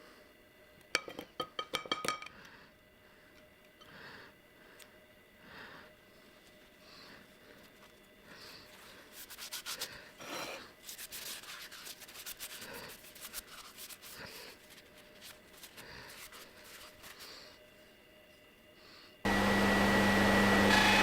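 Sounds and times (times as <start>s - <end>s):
rubbing and scraping strokes: 8.7s - 17.3s.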